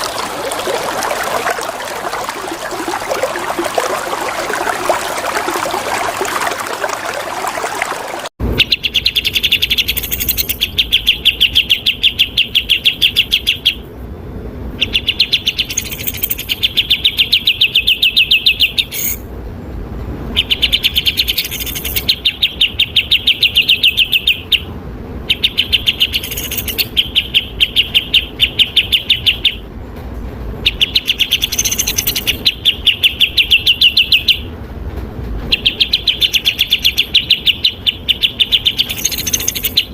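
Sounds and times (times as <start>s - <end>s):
running water: 0.0s - 8.3s
songbird chirping: 0.0s - 13.8s, 14.8s - 19.2s, 35.5s - 39.9s.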